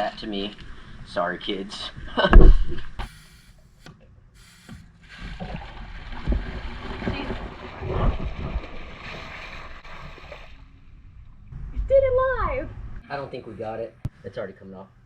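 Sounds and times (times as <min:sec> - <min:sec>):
water rushing and splashing: 0:05.2 - 0:10.8.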